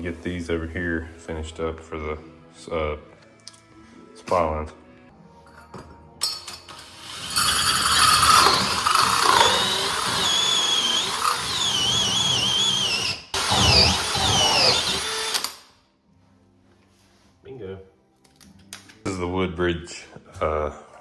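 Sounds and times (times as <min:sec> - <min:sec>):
angle grinder boring through tile: 0:06.3 - 0:15.6.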